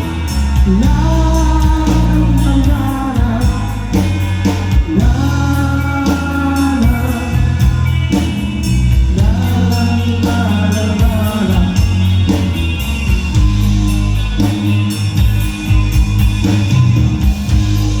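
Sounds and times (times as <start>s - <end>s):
rock band playing: 0.0s - 18.0s
person singing: 0.2s - 4.2s, 4.8s - 8.0s, 9.1s - 12.1s.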